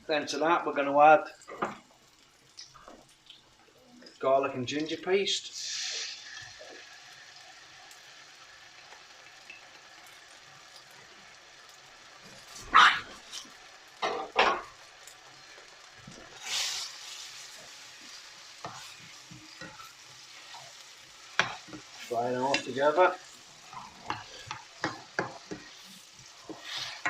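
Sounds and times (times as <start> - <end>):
onions sizzling in oil: 0.4 - 27.0.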